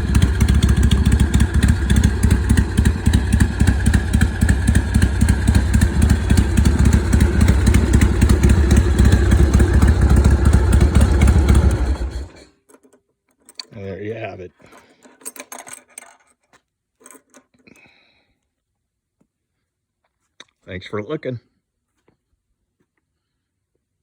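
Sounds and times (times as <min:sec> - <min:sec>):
motorcycle engine idling: 0:00.0 - 0:12.4.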